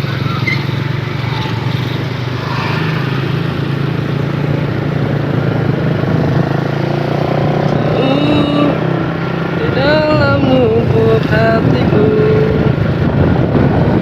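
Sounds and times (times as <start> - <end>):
small engine running: 0.0 - 8.8.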